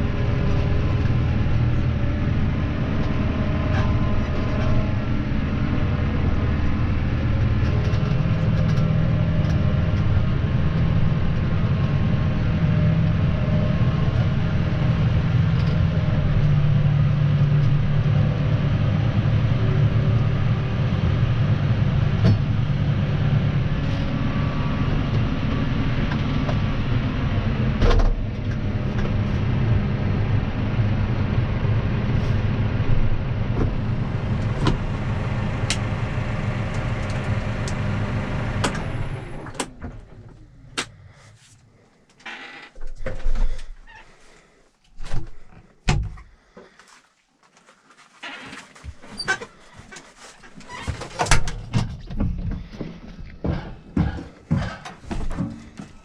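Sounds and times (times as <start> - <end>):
tractor engine running: 0.0 - 41.0.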